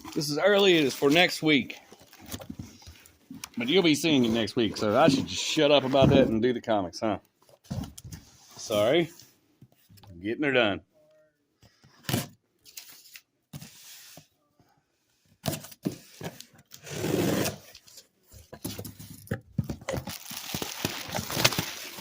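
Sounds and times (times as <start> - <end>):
cardboard and bubble wrap rustling: 0.0 - 6.2, 17.4 - 22.0.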